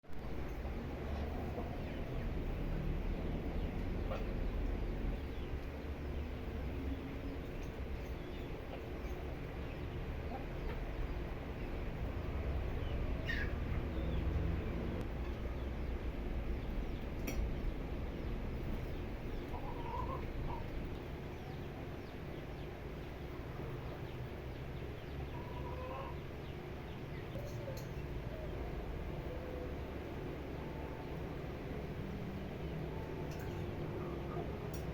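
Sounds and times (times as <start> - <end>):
young chickens clucking: 1.1 - 11.7, 12.8 - 14.4, 16.6 - 22.8, 23.4 - 28.6.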